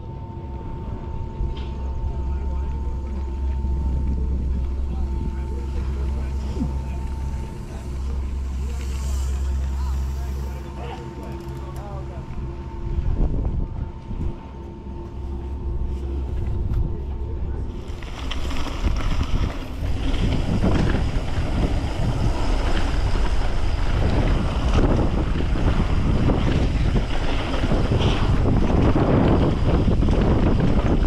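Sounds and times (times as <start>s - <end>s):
mountain bike tyre noise: 1.4s - 13.6s, 14.2s - 31.0s
wind rushing over microphone: 12.3s - 15.0s, 15.6s - 31.0s.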